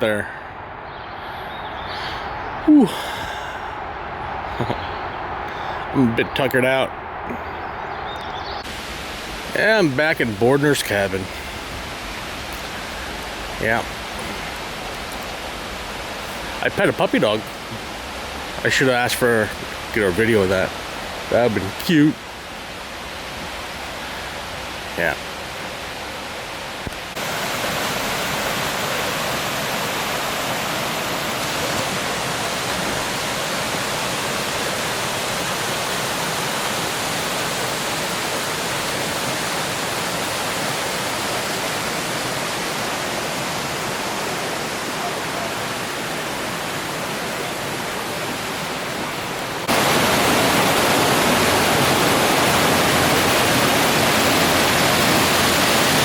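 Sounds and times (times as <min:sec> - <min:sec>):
flowing water: 0:00.0 - 0:56.0.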